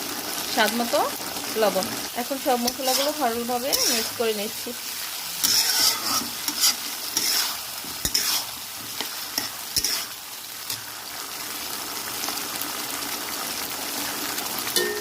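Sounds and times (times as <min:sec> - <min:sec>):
chicken sizzling in a pan: 0:00.0 - 0:15.0
stirring scrapes and knocks: 0:05.0 - 0:10.2.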